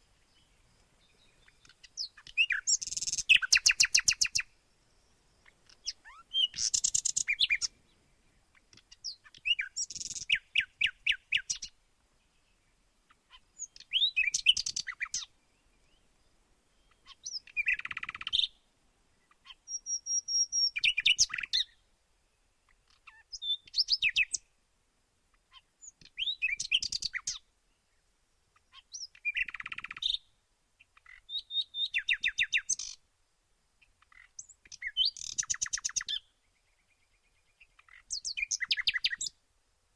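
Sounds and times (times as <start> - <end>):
songbird trilling and whistling: 1.1 - 4.5, 5.4 - 7.8, 8.8 - 11.7, 13.6 - 15.3, 16.8 - 18.6, 19.5 - 21.8, 23.0 - 24.4, 25.8 - 27.4, 28.7 - 30.3, 31.0 - 33.0, 34.1 - 36.3, 37.6 - 39.4.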